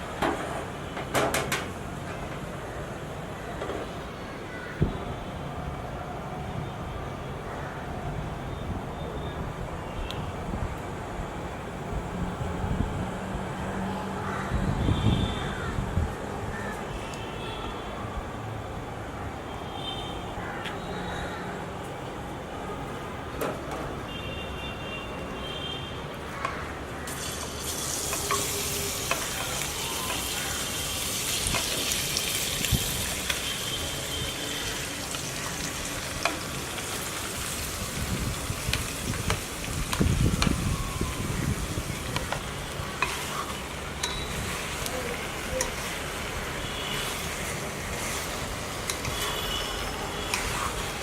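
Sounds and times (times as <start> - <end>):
food sizzling in hot oil: 27.1 - 51.0
spoon scraping a pan: 43.0 - 44.7, 48.0 - 51.0.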